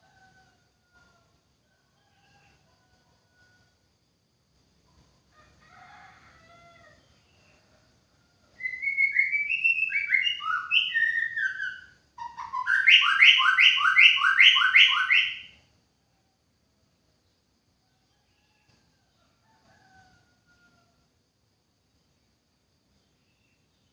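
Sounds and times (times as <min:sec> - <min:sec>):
bird singing whistled notes: 0:08.6 - 0:15.6.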